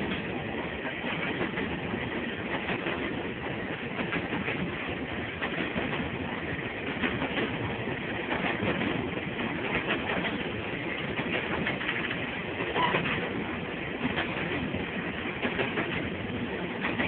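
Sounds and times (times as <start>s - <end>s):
train wheels clacking over rail: 0.0s - 17.0s
brief squeak: 12.8s - 13.1s.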